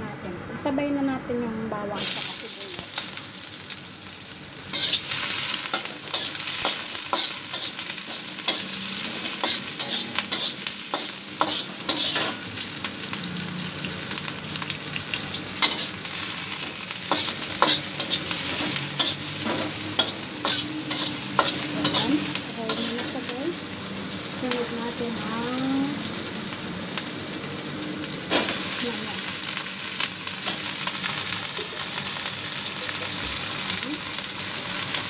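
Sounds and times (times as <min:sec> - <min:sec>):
onion and garlic sizzling: 0:01.7 - 0:35.0
metal spatula scraping pan: 0:04.7 - 0:12.4, 0:17.1 - 0:23.1.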